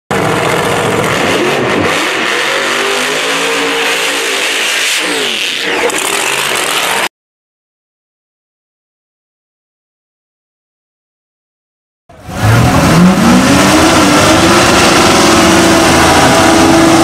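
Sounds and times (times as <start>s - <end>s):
car engine revving hard: 0.1s - 7.1s, 12.1s - 17.0s.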